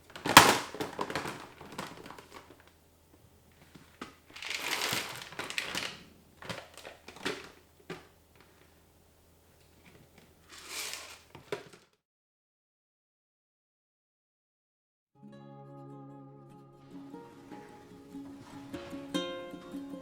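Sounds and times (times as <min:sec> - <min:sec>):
containers clicking and knocking: 0:00.0 - 0:02.8, 0:03.6 - 0:08.8, 0:09.6 - 0:11.8
plastic packaging crinkling: 0:00.0 - 0:11.9.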